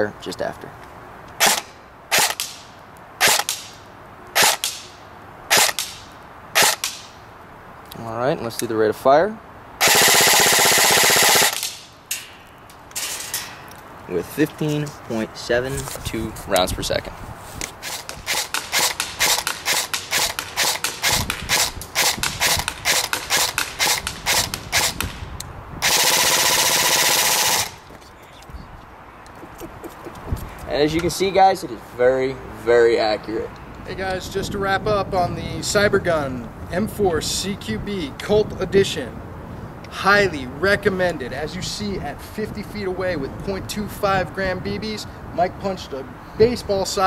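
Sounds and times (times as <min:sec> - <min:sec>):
airsoft rifle shots: 0:01.4 - 0:03.8, 0:04.4 - 0:04.9, 0:05.5 - 0:07.2, 0:09.8 - 0:12.3, 0:17.8 - 0:27.8.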